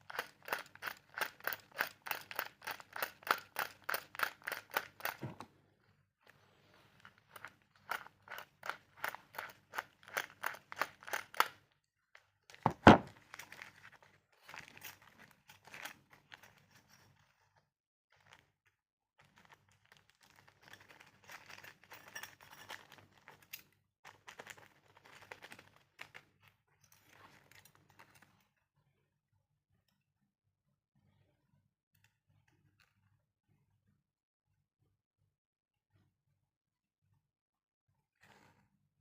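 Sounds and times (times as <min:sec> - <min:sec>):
heavy thunk of object set down: 0:05.2 - 0:05.5, 0:12.6 - 0:13.2
packaging rustling and crinkling: 0:12.5 - 0:17.3, 0:19.2 - 0:23.5, 0:24.1 - 0:26.3.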